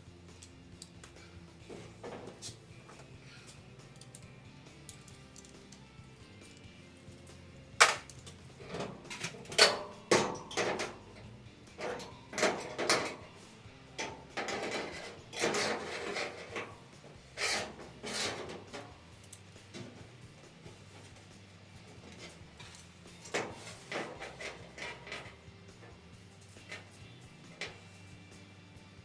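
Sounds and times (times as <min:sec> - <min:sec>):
scraping and rubbing: 0:14.3 - 0:19.1, 0:19.7 - 0:28.1.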